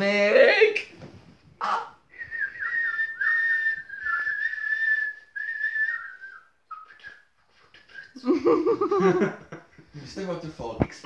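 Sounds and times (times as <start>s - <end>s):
high wavering whistle: 2.2s - 8.2s
short faint whistles: 2.2s - 8.2s.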